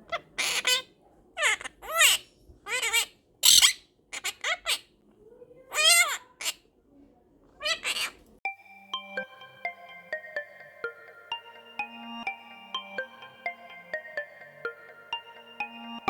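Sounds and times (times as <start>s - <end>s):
parrot squawking: 0.0s - 4.9s, 5.7s - 6.6s, 7.6s - 8.2s.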